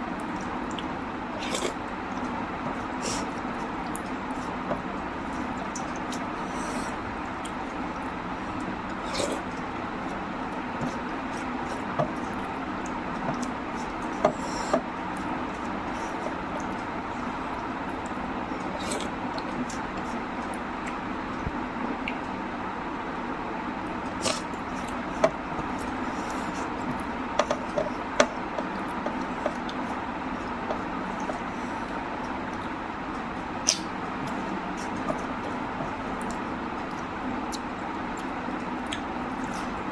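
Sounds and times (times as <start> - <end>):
steady background hum: 0.0 - 39.9
person chewing food: 0.1 - 22.4, 23.9 - 39.9
person eating: 0.2 - 21.3, 23.9 - 39.9
wet mouth clicks and smacks: 22.0 - 22.3, 33.6 - 35.2, 36.2 - 39.5.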